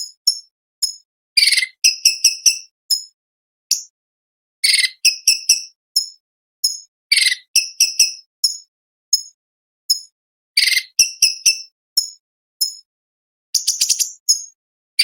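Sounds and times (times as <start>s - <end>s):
bird chips and rattling trills: 13.6s - 14.6s.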